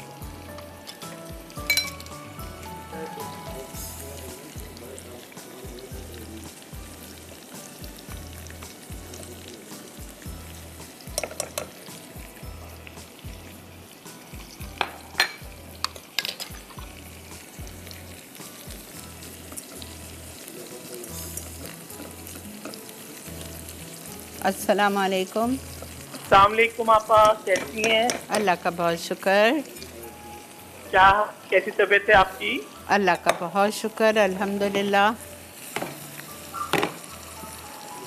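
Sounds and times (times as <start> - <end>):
onion and garlic frying in butter: 0.0 - 38.0
spoon knocking against a pan: 11.1 - 11.8, 14.8 - 16.9, 27.2 - 28.4, 35.7 - 36.0, 36.6 - 37.1.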